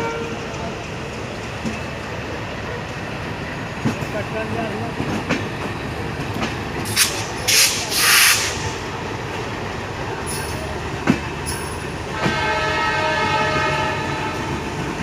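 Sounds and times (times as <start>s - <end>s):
train running: 0.0s - 15.0s
hiss bursts: 6.9s - 8.8s
locomotive horn: 12.1s - 14.6s.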